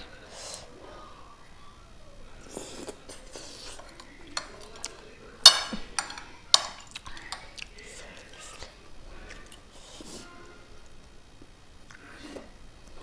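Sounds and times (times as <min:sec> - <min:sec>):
chopsticks knocking against a bowl: 0:03.8 - 0:07.6.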